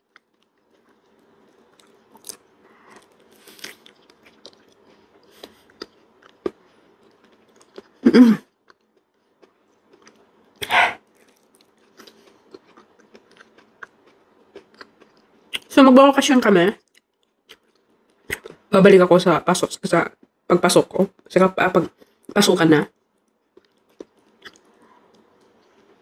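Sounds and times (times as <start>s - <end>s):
wet chewing and lip smacks: 0.1s - 8.0s, 8.6s - 15.7s, 16.8s - 18.6s, 23.0s - 26.0s
short throat or breath sounds: 10.6s - 11.0s.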